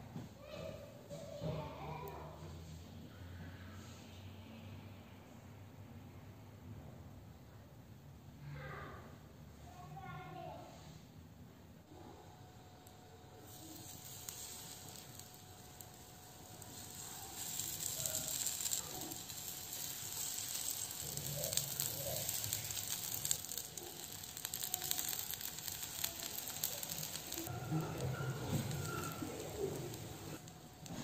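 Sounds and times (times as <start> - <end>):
battered slices sizzling in hot oil: 12.8 - 31.0.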